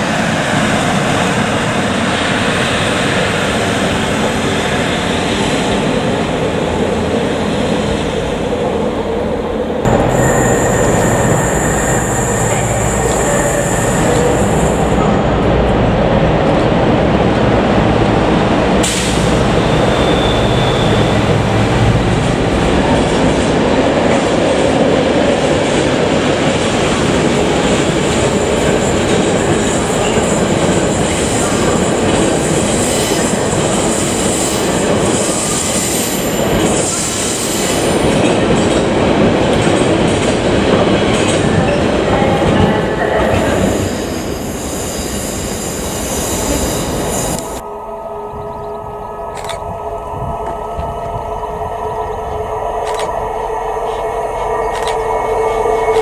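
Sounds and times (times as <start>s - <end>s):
low diesel locomotive sound: 0.0s - 56.0s.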